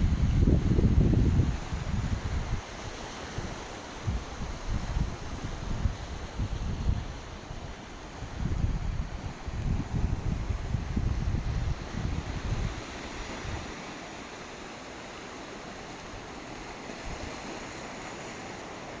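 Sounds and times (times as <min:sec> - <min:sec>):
wind buffeting microphone: 0:00.0 - 0:13.7
sea surf washing on shore: 0:00.0 - 0:19.0.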